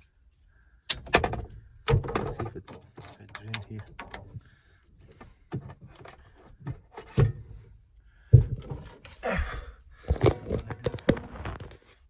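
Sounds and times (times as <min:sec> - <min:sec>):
parts being handled and fitted: 0:00.8 - 0:07.6.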